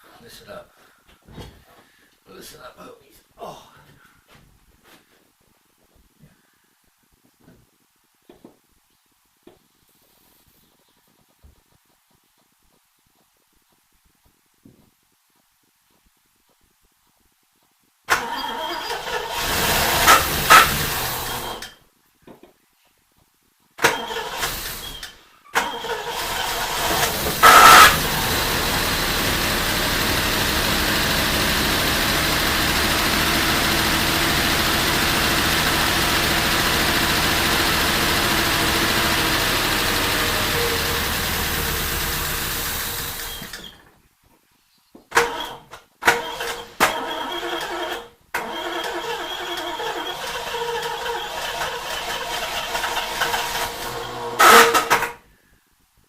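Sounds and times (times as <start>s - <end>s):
engine starter cranking: 18.1s - 21.8s, 23.8s - 43.8s, 45.2s - 55.2s
car engine revving and running: 19.3s - 21.6s, 26.5s - 43.3s.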